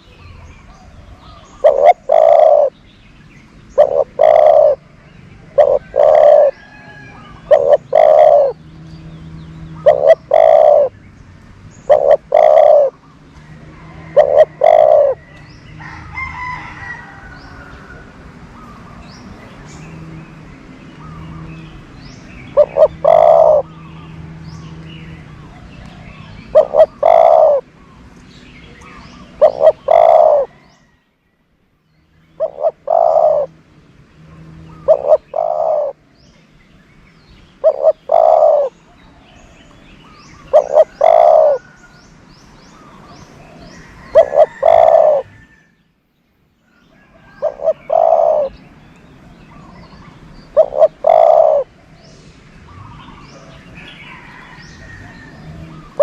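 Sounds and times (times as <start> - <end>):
dove cooing: 0.7 - 2.8, 3.8 - 11.0, 11.8 - 13.0, 13.6 - 18.0, 22.4 - 24.4, 25.4 - 27.8, 28.8 - 30.7, 32.4 - 33.6, 34.2 - 36.1, 37.6 - 39.3, 40.1 - 41.8, 42.7 - 45.6, 47.0 - 48.6, 49.5 - 52.0.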